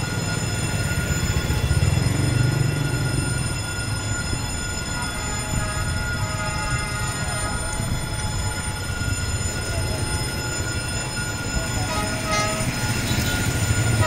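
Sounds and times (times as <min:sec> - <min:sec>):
diesel train rumble: 0:00.0 - 0:14.0
train horn toots: 0:04.9 - 0:08.6, 0:11.8 - 0:14.0.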